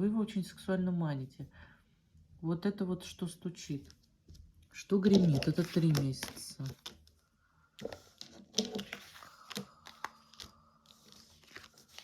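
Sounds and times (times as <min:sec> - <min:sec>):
cards rustling and snapping: 0:05.0 - 0:07.2, 0:07.8 - 0:12.0.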